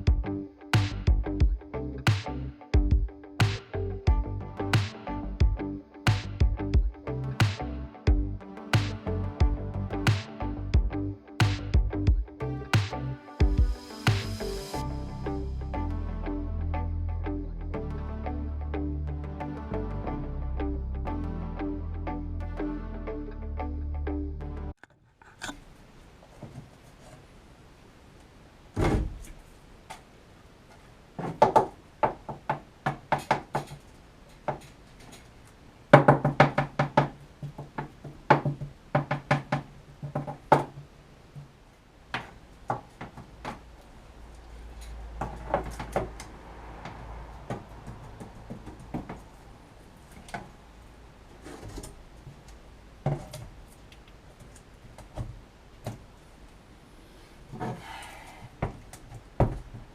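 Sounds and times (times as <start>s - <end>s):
low steady tone: 3.8s - 24.8s
knocks and clatters of hand work: 31.2s - 35.3s, 36.0s - 41.5s, 42.1s - 43.7s, 44.9s - 49.3s.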